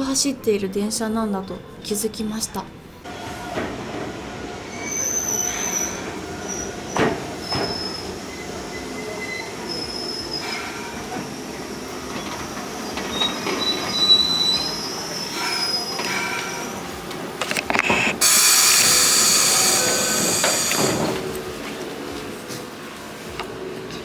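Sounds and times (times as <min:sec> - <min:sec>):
train rumble: 0:03.0 - 0:24.0
train wheels squealing on rails: 0:03.2 - 0:17.0, 0:18.0 - 0:21.2.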